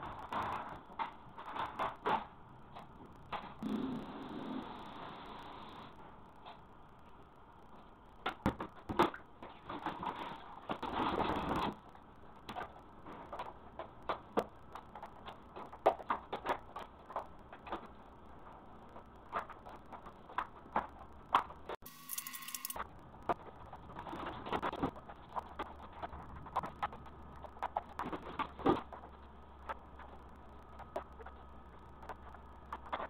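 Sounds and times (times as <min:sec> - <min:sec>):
scraping or rubbing: 0:21.9 - 0:22.8.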